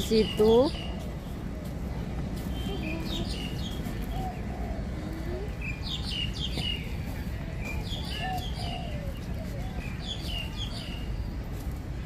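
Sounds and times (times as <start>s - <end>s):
birds chirping downward calls: 2.4s - 11.3s
bird cooing: 2.5s - 5.8s, 8.2s - 10.0s.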